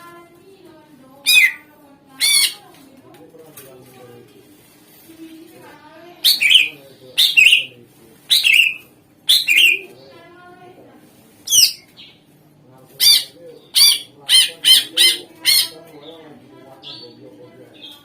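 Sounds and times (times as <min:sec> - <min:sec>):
bird singing loudly: 0:01.2 - 0:01.6, 0:06.2 - 0:07.7, 0:08.3 - 0:09.8, 0:11.5 - 0:11.8.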